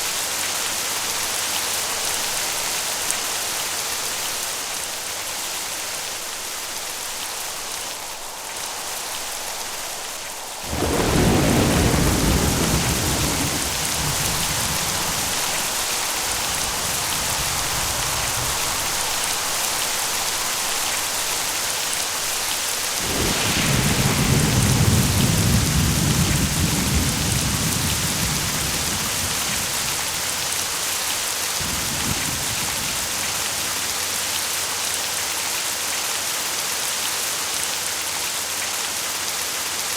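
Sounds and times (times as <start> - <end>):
heavy rain: 0.0 - 39.9
rolling thunder: 6.8 - 34.4.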